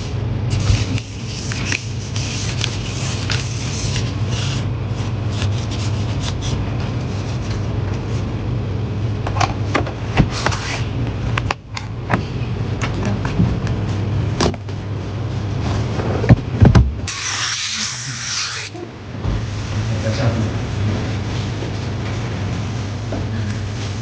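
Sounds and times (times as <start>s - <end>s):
steady low hum: 0.0s - 24.0s
rubbing and scraping: 0.5s - 7.7s, 17.1s - 18.8s.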